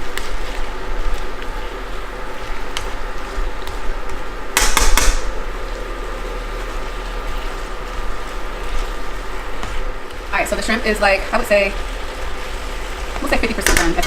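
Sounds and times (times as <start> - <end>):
steady background hum: 0.0 - 14.0
utensil clanking against a wok: 13.2 - 14.0.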